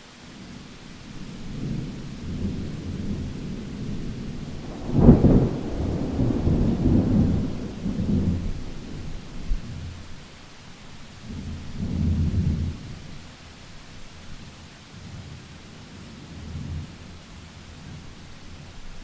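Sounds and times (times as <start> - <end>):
steady rain: 0.0 - 19.0
thunder rumbling and cracking: 1.1 - 10.0.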